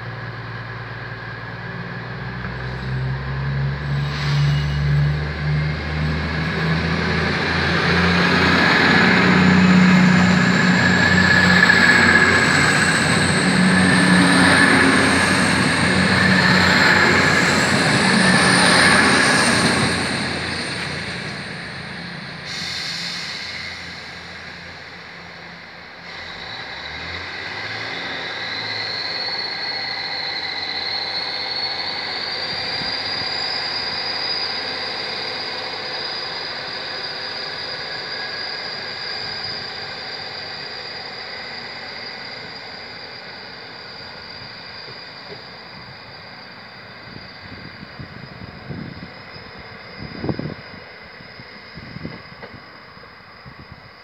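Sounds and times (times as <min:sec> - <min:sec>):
diesel train engine: 0:00.0 - 0:54.0
high whine rising in pitch: 0:02.6 - 0:54.0
air brake hiss: 0:04.0 - 0:05.0, 0:22.3 - 0:25.2, 0:26.0 - 0:29.2.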